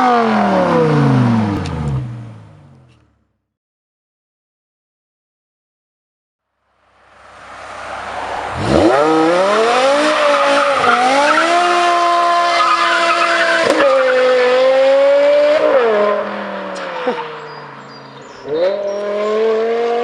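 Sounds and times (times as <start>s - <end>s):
car engine revving hard: 7.5s - 17.2s, 18.4s - 20.0s.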